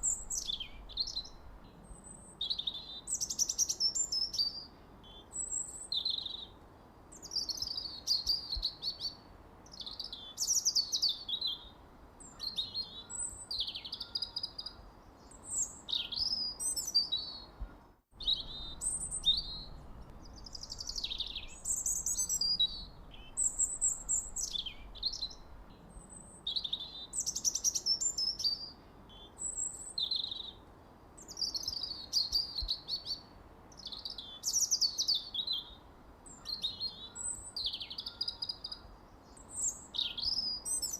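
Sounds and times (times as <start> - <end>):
faint steady hiss: 0.0 - 40.9
birds chirping: 7.2 - 30.6.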